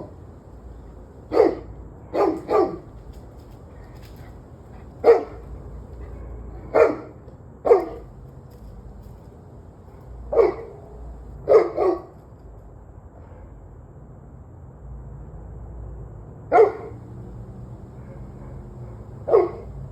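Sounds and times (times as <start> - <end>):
dog barking: 0.8 - 3.1, 3.8 - 8.2, 9.9 - 12.2, 16.5 - 19.9.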